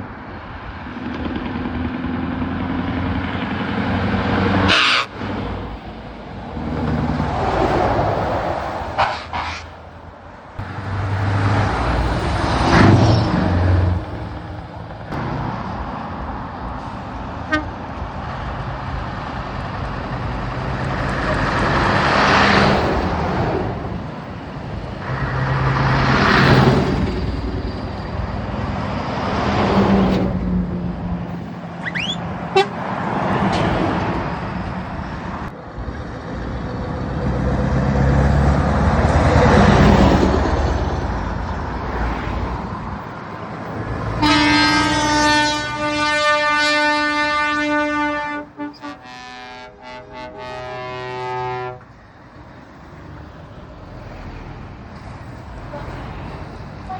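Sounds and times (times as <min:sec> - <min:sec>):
heavy trucks driving past: 0:00.0 - 0:56.9
truck horn toots: 0:04.7 - 0:05.2, 0:09.0 - 0:09.7, 0:17.4 - 0:17.8, 0:31.8 - 0:32.8, 0:44.2 - 0:51.9.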